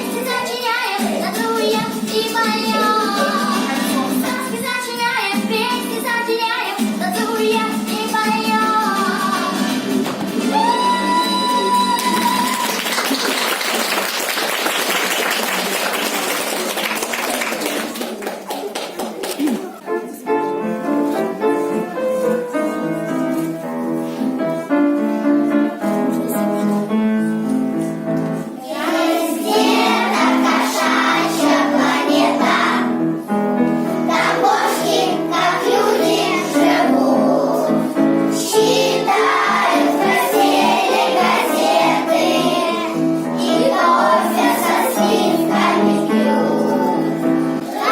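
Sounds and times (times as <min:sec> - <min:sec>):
children singing: 0:00.0 - 0:12.1, 0:28.6 - 0:33.0, 0:34.1 - 0:47.9
piano-like melody: 0:19.7 - 0:47.9.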